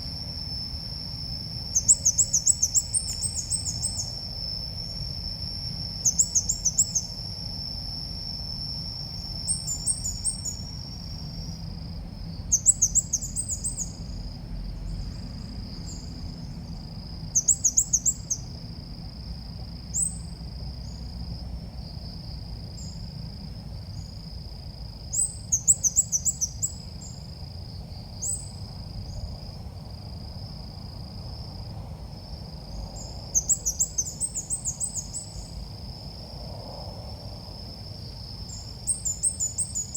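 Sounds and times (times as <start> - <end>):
steady high-pitched whine: 0.0 - 24.3.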